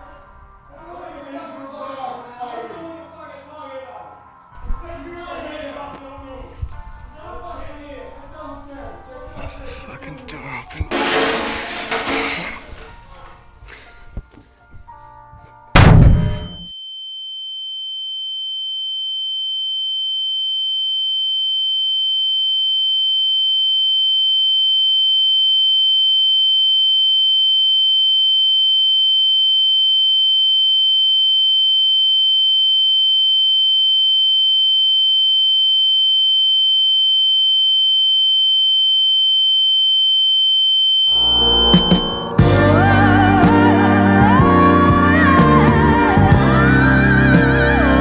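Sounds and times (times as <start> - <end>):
high-pitched electronic sine tone: 15.8 - 43.2
fainter lower tone: 41.0 - 47.0.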